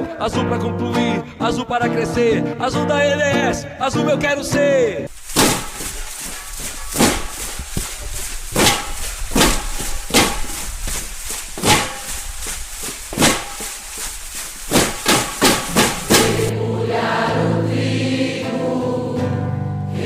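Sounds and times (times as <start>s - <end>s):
sharp percussive knocks: 5.3s - 16.5s.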